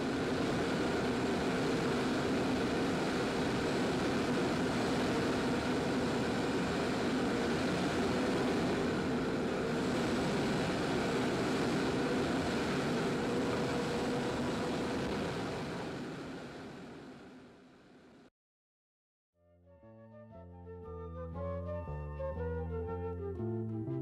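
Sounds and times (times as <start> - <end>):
airplane engine overhead: 0.0 - 18.1.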